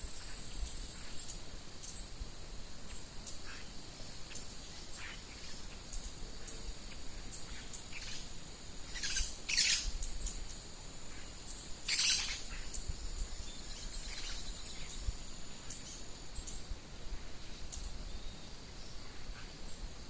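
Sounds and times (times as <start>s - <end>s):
birds chirping: 8.9s - 10.6s, 11.2s - 16.6s.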